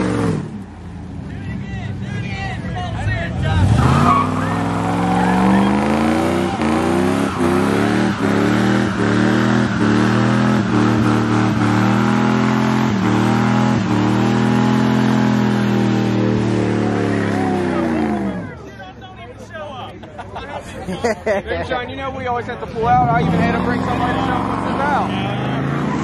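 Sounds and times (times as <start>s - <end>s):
truck engine revving high: 0.0s - 0.7s, 3.2s - 18.6s, 22.7s - 26.0s.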